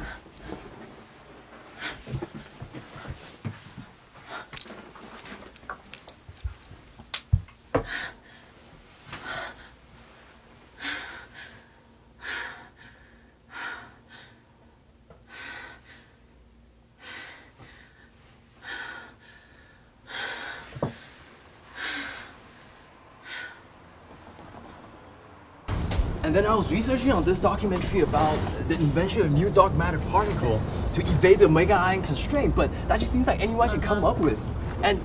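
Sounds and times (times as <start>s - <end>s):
woman breathing heavily: 0.0s - 0.7s, 1.6s - 5.3s, 7.7s - 23.8s.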